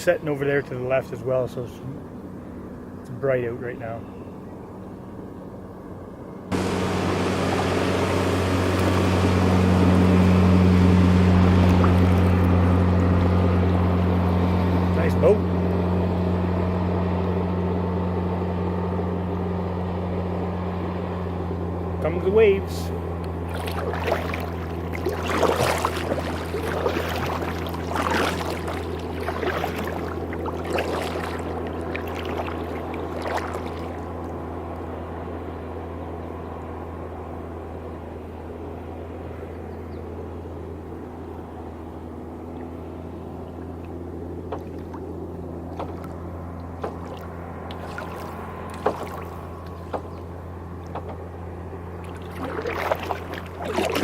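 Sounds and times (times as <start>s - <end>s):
steady low hum: 0.0s - 54.0s
waves slapping against kayak hull: 6.5s - 14.8s, 23.2s - 34.4s, 43.8s - 51.3s, 52.0s - 54.0s.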